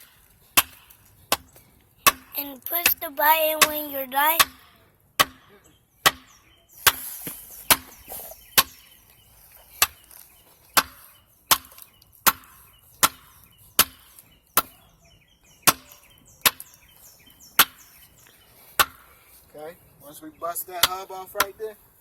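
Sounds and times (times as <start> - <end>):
hammer striking pipe: 4.4 - 7.0.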